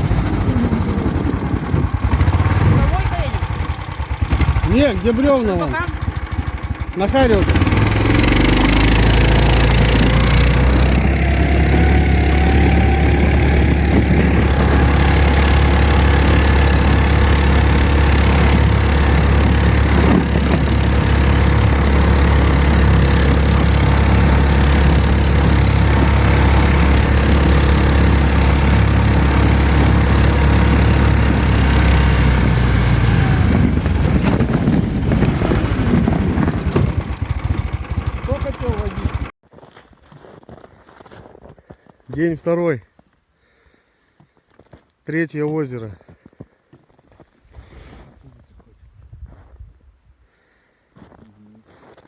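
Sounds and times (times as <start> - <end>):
vehicle engine humming: 0.0 - 39.3.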